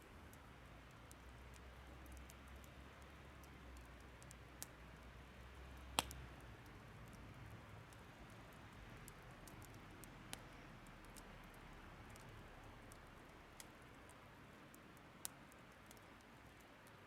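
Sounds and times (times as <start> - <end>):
faint steady hiss: 0.0 - 17.0
firewood crackling: 0.0 - 17.0
sharp pop of burning wood: 5.9 - 6.2.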